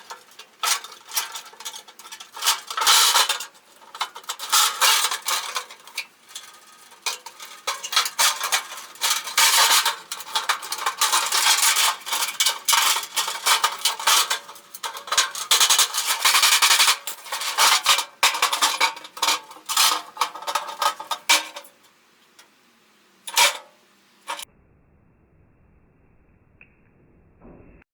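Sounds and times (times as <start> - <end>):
metal objects clinking: 0.0 - 21.8.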